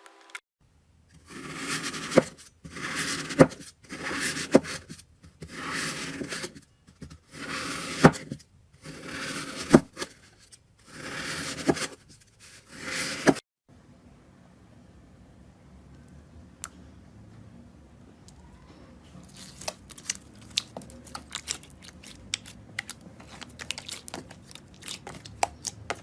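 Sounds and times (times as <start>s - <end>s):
slime squelching by hand: 19.2s - 26.0s.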